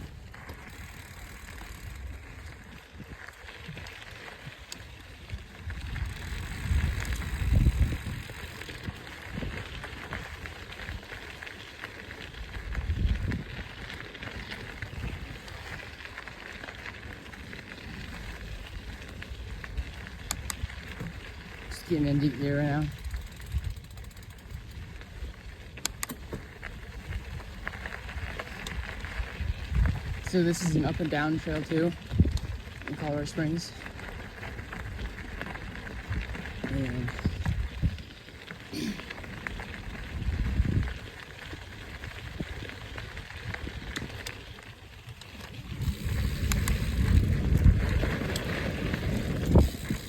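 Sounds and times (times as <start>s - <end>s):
wind rumble on microphone: 0.0s - 38.2s, 38.8s - 50.0s
bike clicks: 0.0s - 50.0s.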